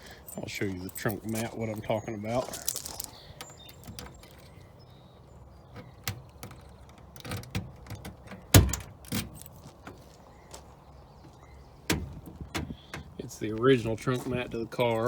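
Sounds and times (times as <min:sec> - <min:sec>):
trunk lock clicks and knocks: 0:05.7 - 0:09.4, 0:11.9 - 0:13.2.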